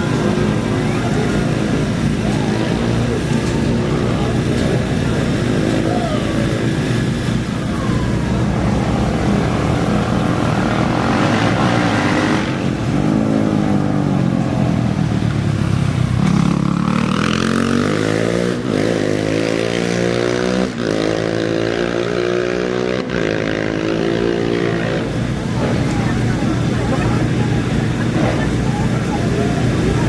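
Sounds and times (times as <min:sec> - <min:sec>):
drone of race engines: 0:00.0 - 0:30.0
race engine revving: 0:00.0 - 0:30.0.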